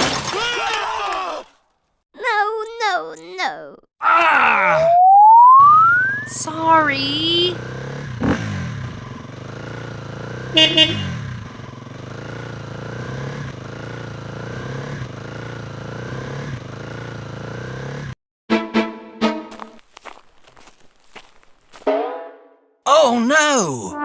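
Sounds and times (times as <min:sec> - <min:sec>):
small vehicle engine running: 0:05.6 - 0:18.2
double horn toot: 0:10.4 - 0:11.5.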